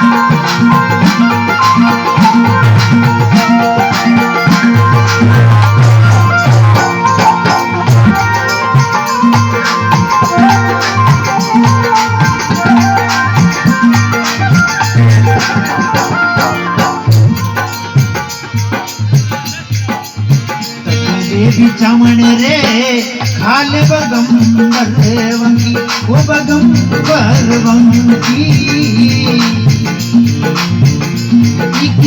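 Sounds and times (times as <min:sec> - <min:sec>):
folk melody: 0:00.0 - 0:19.0
drum beat: 0:00.0 - 0:32.0
shaker percussion rattling: 0:00.0 - 0:32.0.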